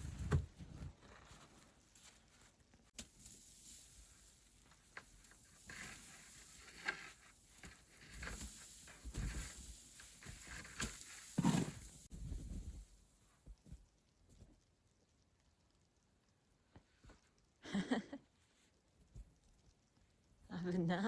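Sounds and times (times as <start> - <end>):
footsteps crunching in snow: 0.0 - 12.7.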